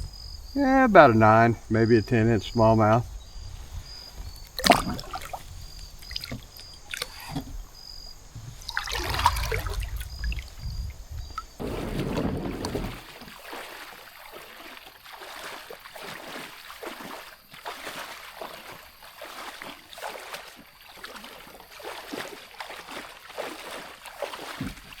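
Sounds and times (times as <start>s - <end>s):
water splashing and trickling: 0.0s - 25.0s
low rumble: 8.9s - 12.7s.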